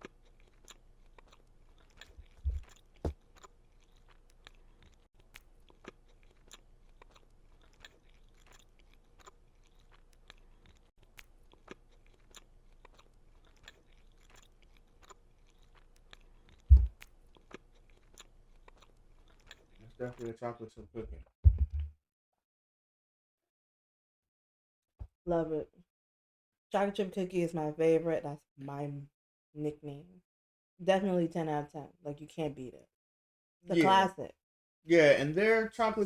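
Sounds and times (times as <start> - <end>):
chewing cookie with wet mouth clicks: 0.0 - 20.3
dull low thumps: 2.2 - 2.8, 16.7 - 17.0, 21.1 - 21.9.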